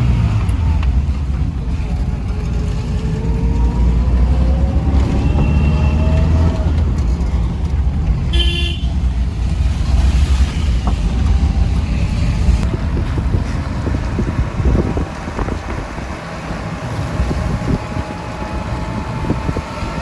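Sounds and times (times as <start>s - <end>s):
car engine and road noise: 0.0s - 20.0s
car horn toot: 5.0s - 6.4s, 8.3s - 9.1s.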